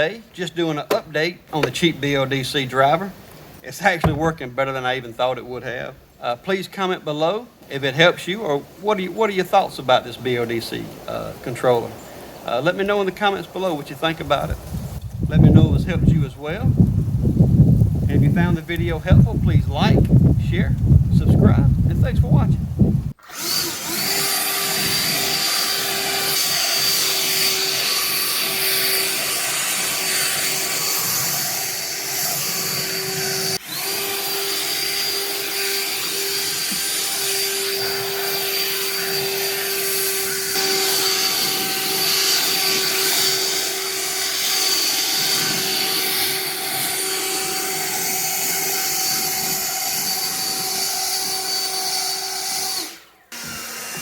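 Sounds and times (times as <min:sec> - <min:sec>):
leaf blower running: 0:23.2 - 0:51.6, 0:53.3 - 0:54.0.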